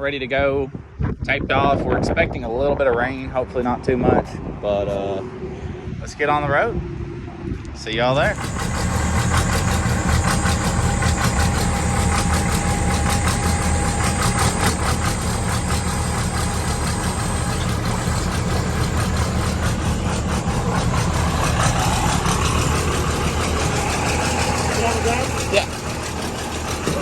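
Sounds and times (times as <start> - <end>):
truck engine running: 8.1 - 27.0
thin high whine: 8.2 - 27.0.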